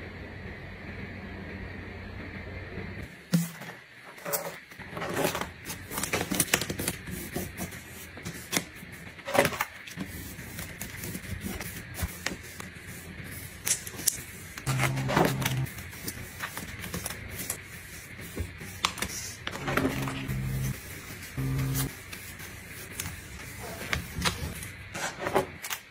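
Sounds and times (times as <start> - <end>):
short low buzz: 19.9 - 20.8, 21.4 - 21.9.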